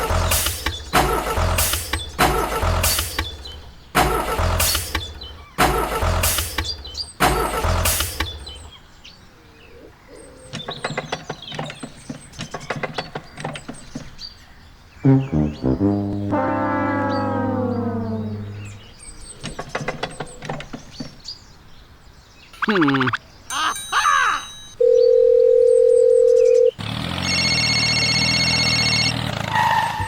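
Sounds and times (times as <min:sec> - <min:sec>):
engine bursts with deep rumble: 0:00.0 - 0:08.6, 0:15.1 - 0:19.3.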